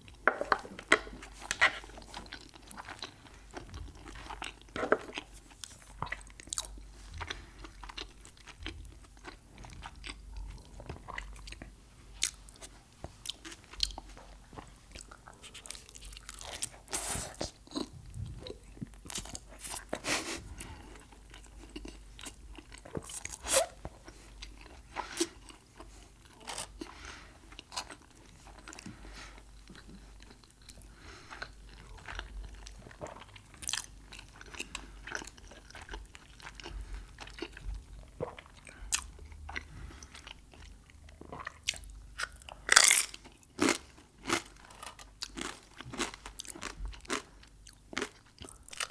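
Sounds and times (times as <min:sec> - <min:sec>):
crunchy bites and chewing: 0:41.1 - 0:48.9.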